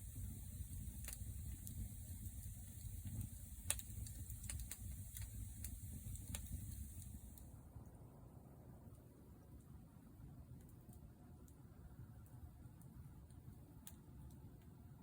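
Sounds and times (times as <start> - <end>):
campfire rumble: 0.0 - 7.6
fire crackling pops: 0.0 - 7.6
high hiss: 0.0 - 7.6.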